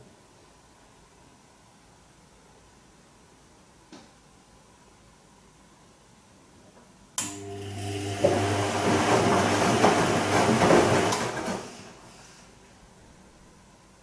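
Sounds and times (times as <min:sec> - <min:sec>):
washing machine motor hum: 0:07.2 - 0:12.4
laundry and water swishing: 0:07.6 - 0:12.4.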